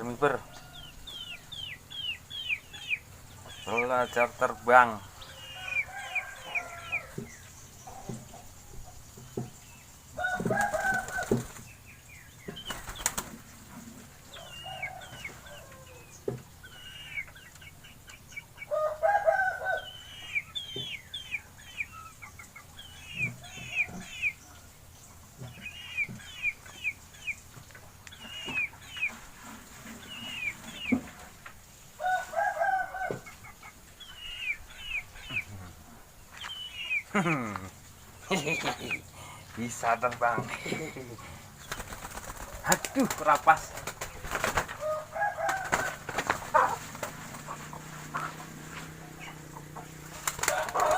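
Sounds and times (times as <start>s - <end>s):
hen clucking: 0.0s - 9.6s, 12.4s - 24.6s, 25.2s - 50.9s
pigeons flapping wings: 12.7s - 13.4s, 41.6s - 44.8s, 45.4s - 47.5s, 50.1s - 50.9s.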